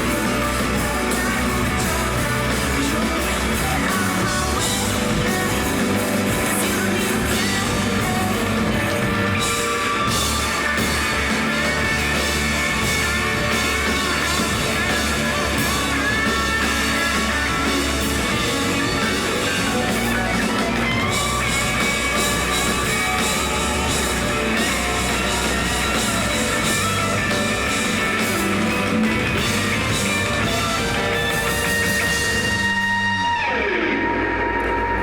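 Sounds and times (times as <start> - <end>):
bass and drums: 0.0 - 35.0
electric guitar: 0.0 - 35.0
held high tone: 4.3 - 33.9.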